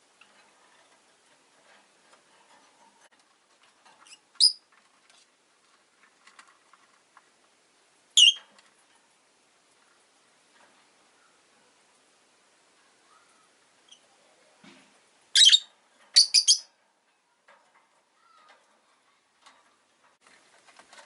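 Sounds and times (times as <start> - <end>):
cage clicks and rustling: 0.1 - 7.6, 16.8 - 21.0
lovebird chirping: 4.1 - 4.6, 8.2 - 8.4, 15.3 - 16.7.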